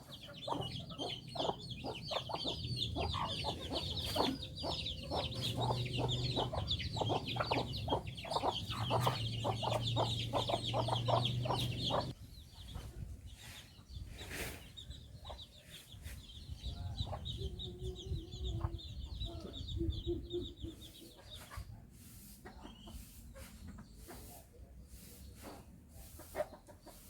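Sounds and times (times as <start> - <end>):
high-pitched chirping: 0.0 - 12.2
chickens clucking: 0.0 - 27.0.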